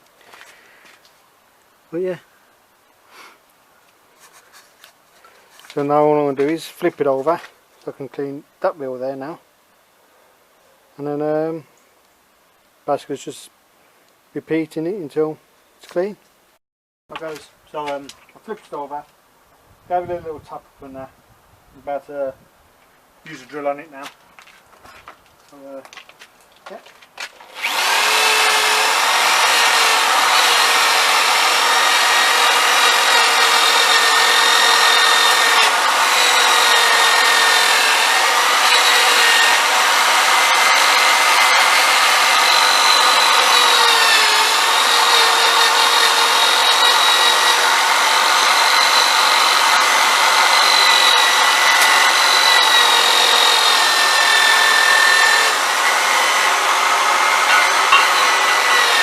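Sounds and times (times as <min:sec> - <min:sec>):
electric drill whining: 0:27.4 - 0:59.0.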